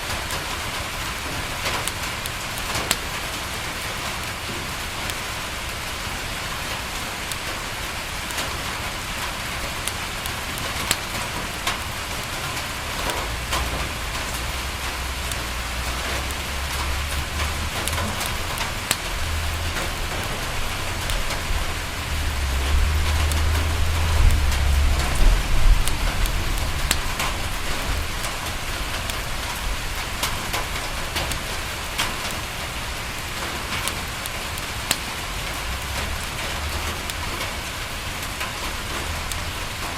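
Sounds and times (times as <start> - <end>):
rain pattering on a window: 0.0 - 39.9
sharp ticks: 1.6 - 3.2, 8.2 - 32.5
low rumble: 19.1 - 29.0.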